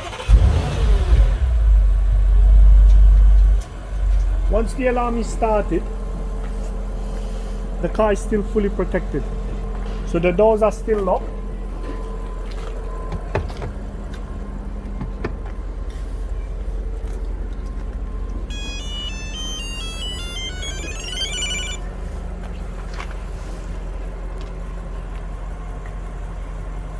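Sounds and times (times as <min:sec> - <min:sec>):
electronic beeping melody: 0:18.5 - 0:21.8.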